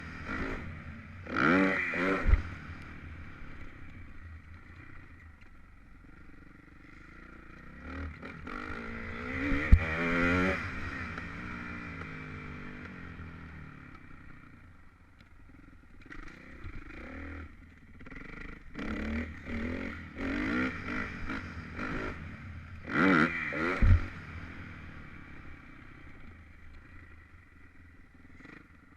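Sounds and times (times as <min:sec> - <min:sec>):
motorbike engine revving: 0:00.0 - 0:03.3, 0:07.6 - 0:13.6, 0:16.0 - 0:25.5.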